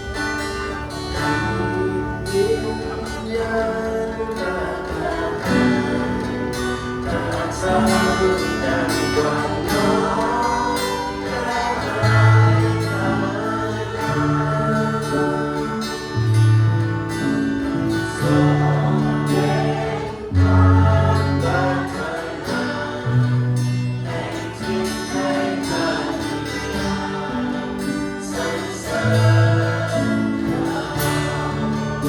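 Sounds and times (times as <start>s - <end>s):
group of voices singing: 0.0s - 32.0s.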